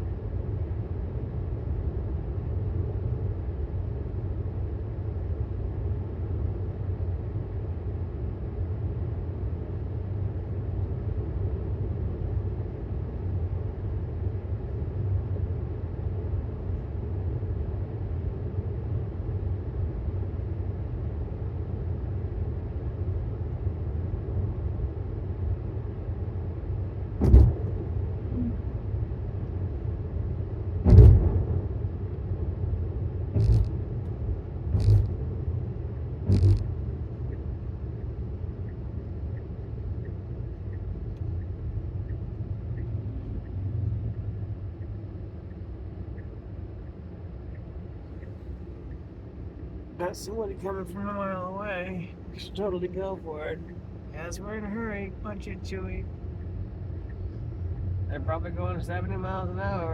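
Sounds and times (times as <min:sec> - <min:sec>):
road and tyre rumble in car: 0:00.0 - 0:59.9
short thumps: 0:33.4 - 0:33.8, 0:34.7 - 0:35.2, 0:36.3 - 0:36.7.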